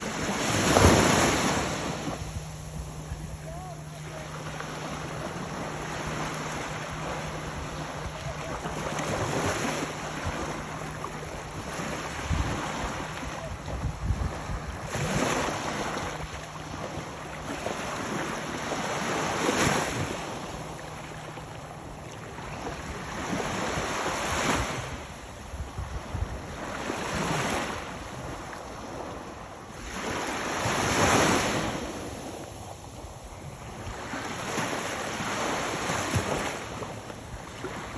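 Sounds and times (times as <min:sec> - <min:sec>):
wind buffeting microphone: 0:00.0 - 0:18.2, 0:21.6 - 0:29.6
surf waves breaking: 0:00.0 - 0:37.9.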